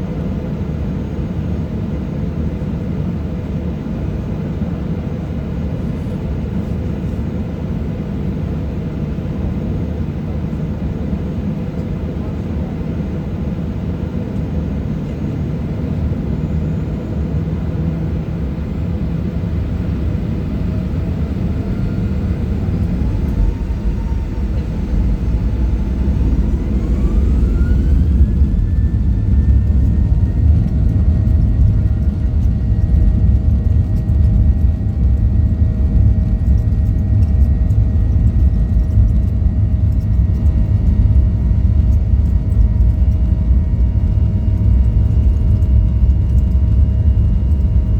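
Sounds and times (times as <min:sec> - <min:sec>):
heavy rumble: 0:18.0 - 0:47.9
jet engines spooling up: 0:19.0 - 0:47.8.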